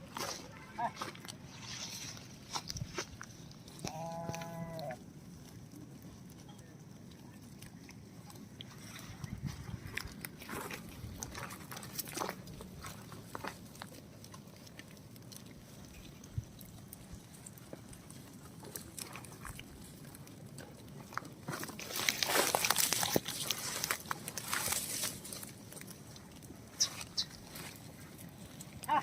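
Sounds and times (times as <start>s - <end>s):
animal chewing and crunching feed: 0.0s - 29.0s
scuffling: 21.1s - 25.9s.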